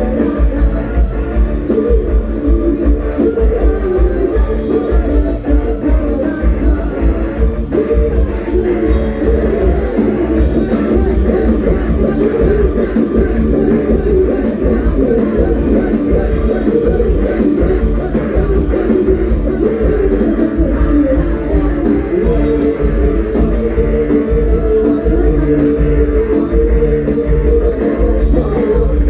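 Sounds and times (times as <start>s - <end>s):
heavy pulsing bass and drums: 0.0s - 29.0s.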